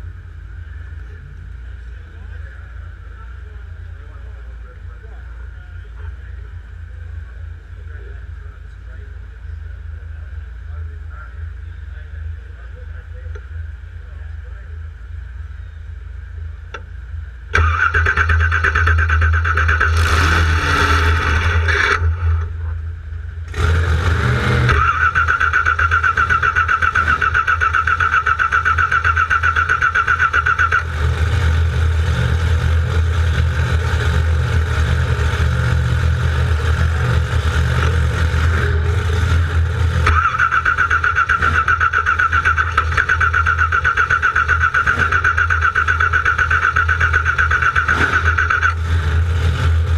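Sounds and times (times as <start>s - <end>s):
car engine cranking: 16.6s - 49.9s.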